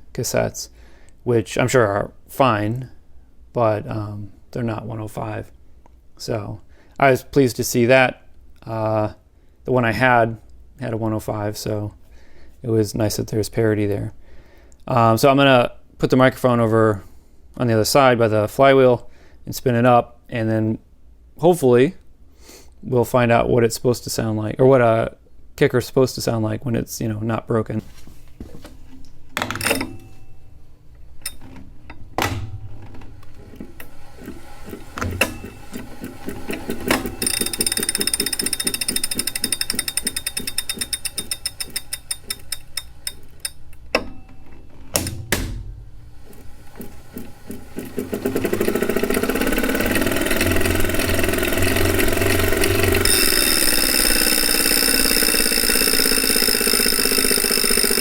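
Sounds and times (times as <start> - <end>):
flywheel whirring and whining: 33.3 - 43.7, 46.1 - 58.0
knocks: 45.0 - 45.9.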